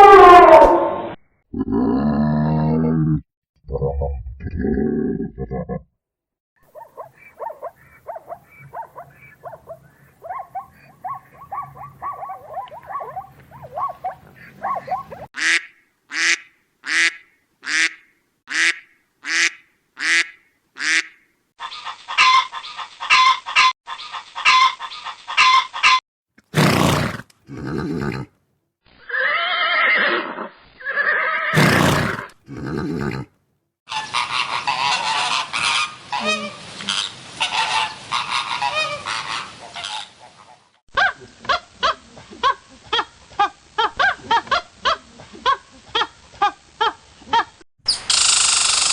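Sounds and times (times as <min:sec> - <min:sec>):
small chattering animal calls: 0:06.7 - 0:15.3.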